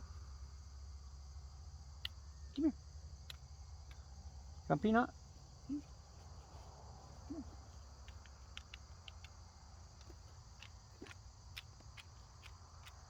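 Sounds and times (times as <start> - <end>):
insects chirring: 0.0 - 13.0
faint clicks: 7.3 - 13.0.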